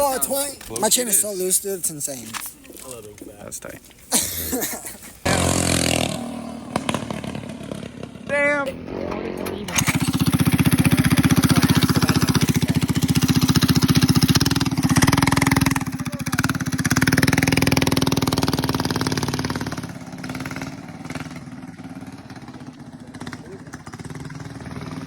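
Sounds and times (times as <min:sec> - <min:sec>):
minibike engine running: 0:05.2 - 0:25.0.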